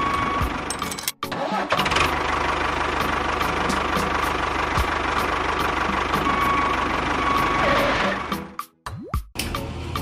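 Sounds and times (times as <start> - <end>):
tractor engine idling: 0.0 - 1.2, 1.8 - 7.7.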